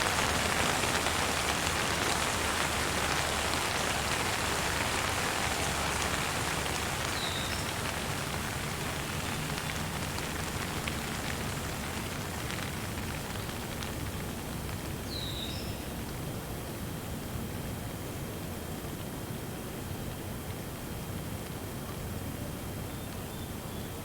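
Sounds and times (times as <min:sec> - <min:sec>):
raindrops ticking: 0:00.0 - 0:16.2
rain hissing: 0:00.0 - 0:16.4
bird chirping: 0:07.1 - 0:07.8.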